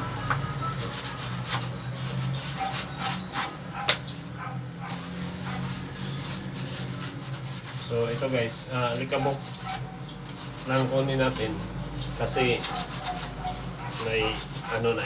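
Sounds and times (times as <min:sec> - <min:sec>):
low steady hum: 0:00.0 - 0:01.3
brush scrubbing air conditioner: 0:00.4 - 0:15.0.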